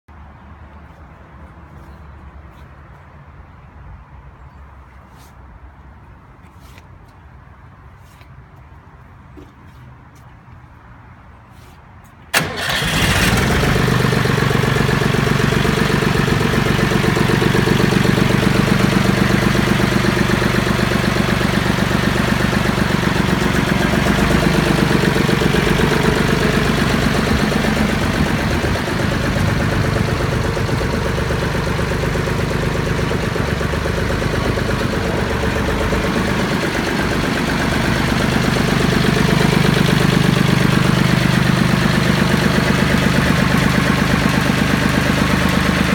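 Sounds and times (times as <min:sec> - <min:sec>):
tractor diesel engine idling: 0:12.3 - 0:45.9.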